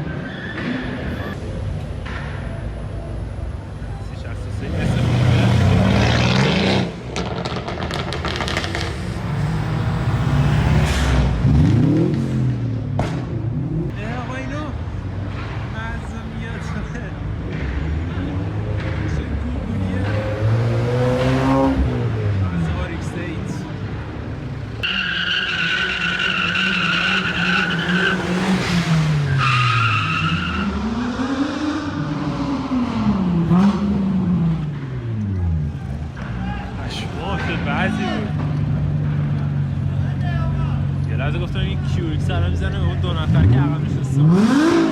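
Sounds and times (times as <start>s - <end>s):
car tyres squealing: 0.0s - 2.9s, 24.4s - 44.9s
engine crackles: 4.1s - 14.0s
sports car engine revving: 4.5s - 14.0s, 17.4s - 35.8s, 40.8s - 44.9s.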